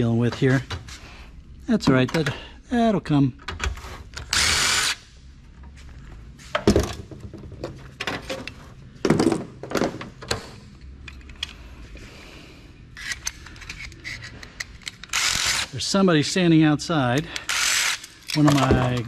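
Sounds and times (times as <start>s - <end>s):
metal computer parts clattering: 18.3s - 19.0s.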